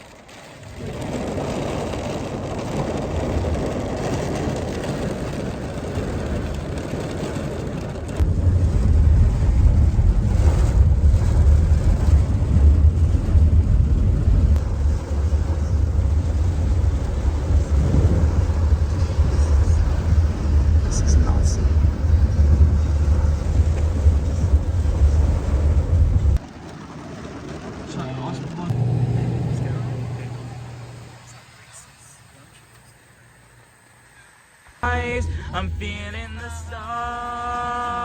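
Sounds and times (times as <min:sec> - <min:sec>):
low rumble of moving car: 0:00.0 - 0:38.0
car cabin rushing noise: 0:00.7 - 0:26.5.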